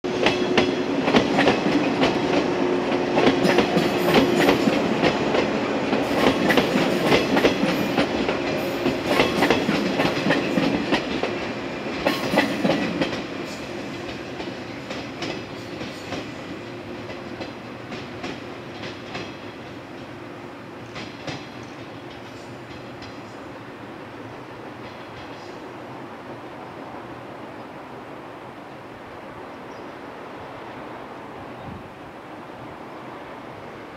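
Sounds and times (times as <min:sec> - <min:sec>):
steady train hum: 0:00.0 - 0:33.9
train wheels clacking over rail joints: 0:00.1 - 0:20.2, 0:20.8 - 0:23.5.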